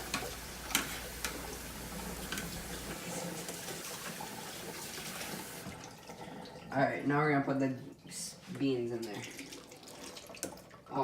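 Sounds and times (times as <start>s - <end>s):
tap water running into sink: 0.0s - 6.6s, 9.0s - 10.9s.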